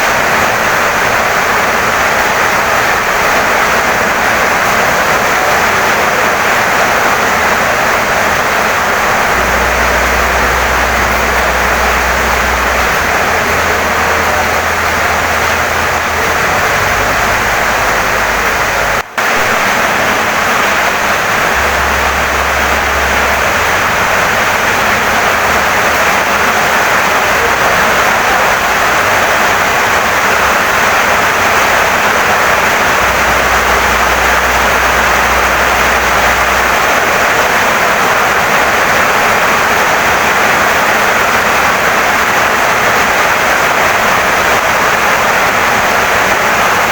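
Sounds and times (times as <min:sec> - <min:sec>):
heavy rain on wooden house: 0:00.0 - 0:46.9
low hum: 0:08.7 - 0:29.8.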